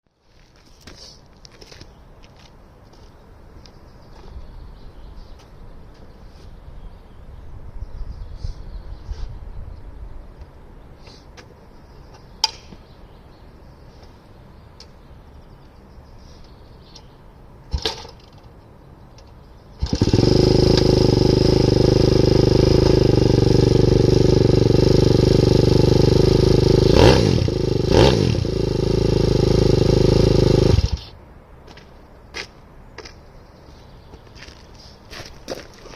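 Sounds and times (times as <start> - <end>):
motorbike engine starting and revving: 19.8 - 31.1.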